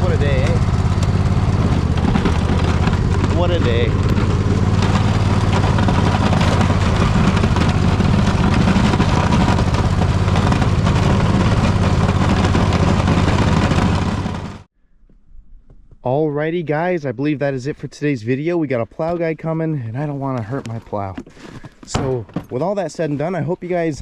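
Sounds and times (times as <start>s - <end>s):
riding mower engine running: 0.0s - 14.7s.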